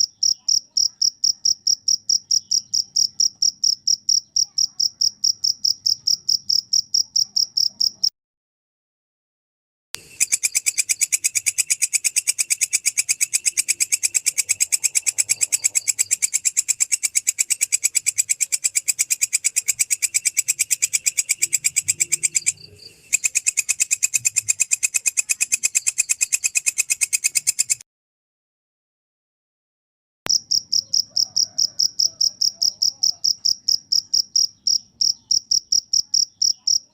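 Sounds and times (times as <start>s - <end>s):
insect chirping: 0.0s - 8.1s, 10.0s - 27.8s, 30.3s - 36.9s.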